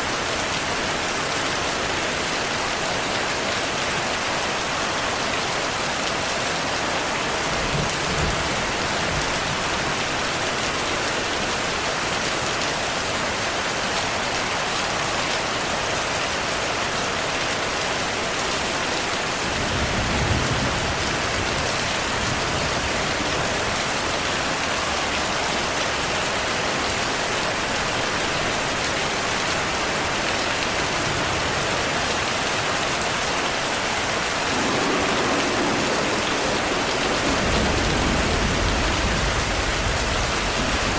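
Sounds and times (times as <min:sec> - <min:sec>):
heavy rainfall: 0:00.0 - 0:40.9
thunder rumbles: 0:34.4 - 0:40.9.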